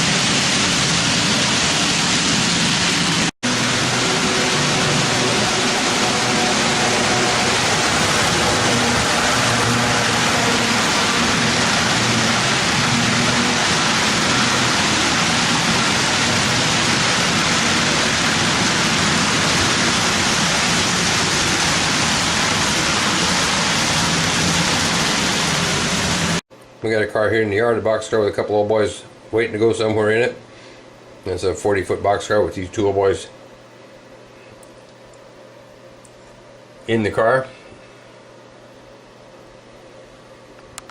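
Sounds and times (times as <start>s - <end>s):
model train wheels on track: 2.9s - 26.4s.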